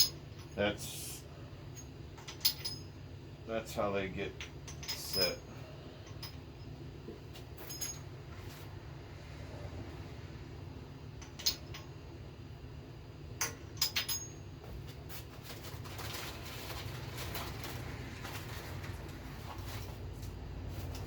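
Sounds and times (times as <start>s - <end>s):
steady low hum: 0.0s - 21.0s
small metal parts clinking: 1.7s - 2.9s, 4.4s - 6.7s, 7.6s - 8.1s, 11.2s - 12.0s, 13.4s - 14.4s.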